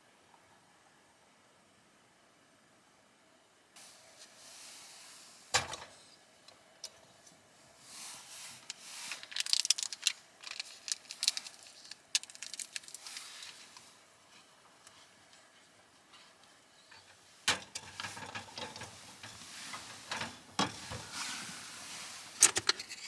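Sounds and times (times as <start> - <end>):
rustling of objects: 7.2 - 23.0.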